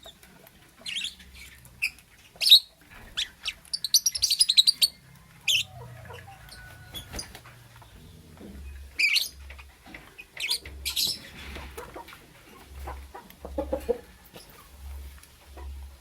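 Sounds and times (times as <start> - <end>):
lovebird shrill chirps: 2.4 - 5.7.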